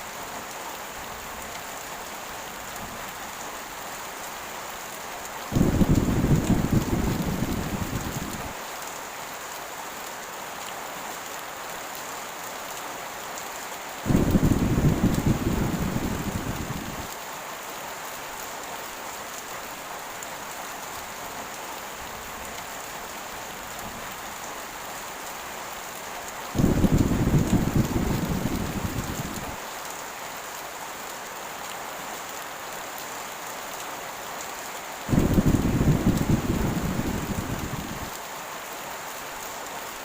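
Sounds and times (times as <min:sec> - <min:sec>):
heavy rain falling: 0:00.0 - 0:40.0
thunder rolling: 0:05.6 - 0:08.6, 0:14.1 - 0:17.1, 0:26.6 - 0:29.6, 0:35.1 - 0:38.1.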